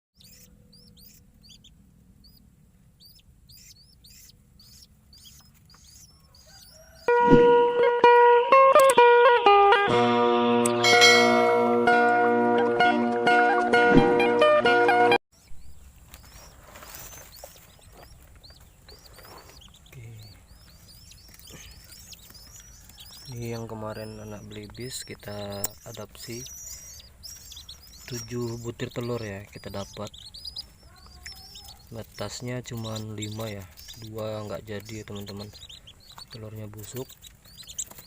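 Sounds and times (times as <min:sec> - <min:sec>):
ducklings peeping: 0:00.2 - 0:07.6, 0:15.4 - 0:38.0.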